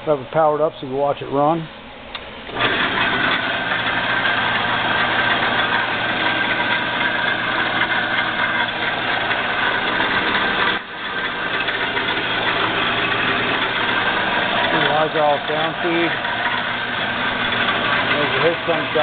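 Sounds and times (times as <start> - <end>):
band saw running: 2.5 - 19.0.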